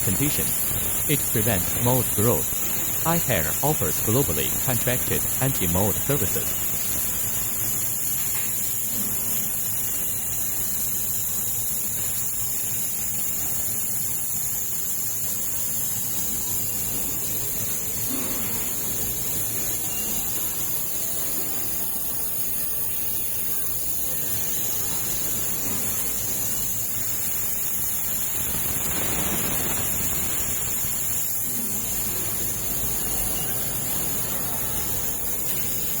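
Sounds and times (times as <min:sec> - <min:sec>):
steady hiss: 0:00.0 - 0:17.8, 0:24.1 - 0:36.0.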